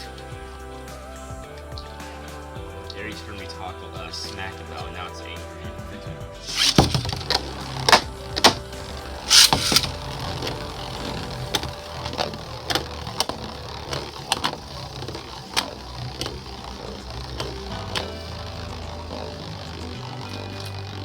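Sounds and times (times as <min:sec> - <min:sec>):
spinning tops clashing: 0:06.5 - 0:20.0
spinning tops clicking and knocking: 0:06.5 - 0:20.9.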